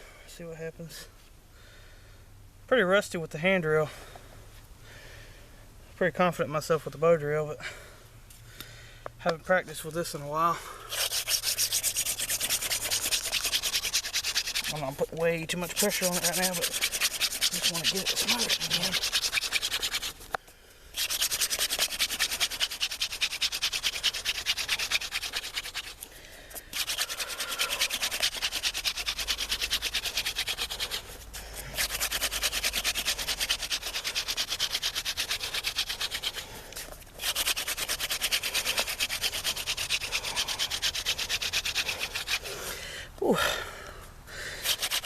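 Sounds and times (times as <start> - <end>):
hand drill rasping on wood: 10.4 - 42.8, 44.5 - 45.0.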